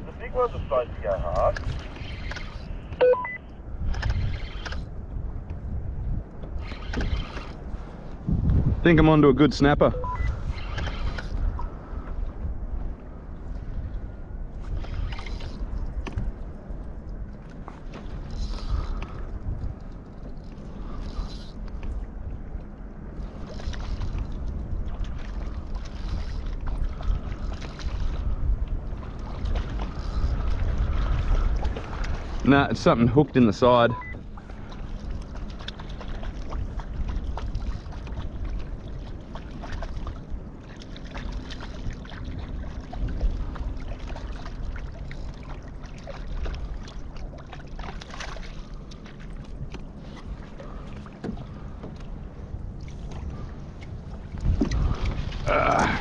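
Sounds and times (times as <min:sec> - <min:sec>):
water moving against kayak: 0:00.0 - 0:56.0
wind rumble on microphone: 0:00.0 - 0:56.0
short electronic beep: 0:03.0 - 0:03.5, 0:09.9 - 0:10.4, 0:33.9 - 0:34.2.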